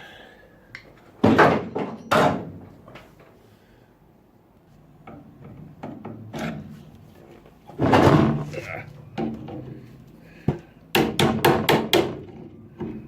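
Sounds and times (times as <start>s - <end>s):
sharp knocks: 10.5s - 12.4s.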